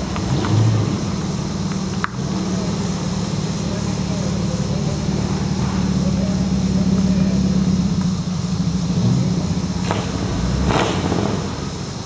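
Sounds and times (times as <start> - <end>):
car engines rumbling: 0.0 - 12.0
hissing whooshes: 9.2 - 12.0.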